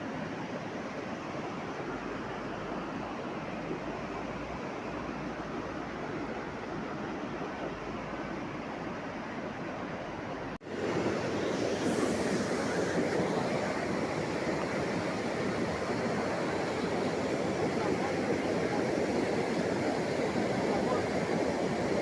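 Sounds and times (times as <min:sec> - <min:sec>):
steady rushing noise: 0:10.6 - 0:22.0.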